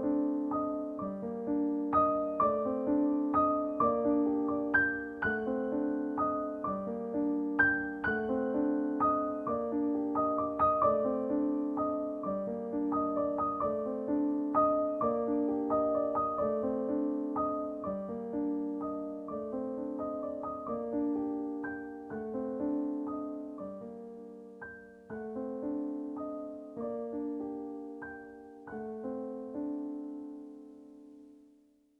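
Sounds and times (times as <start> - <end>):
soft piano music: 0.0 - 31.9.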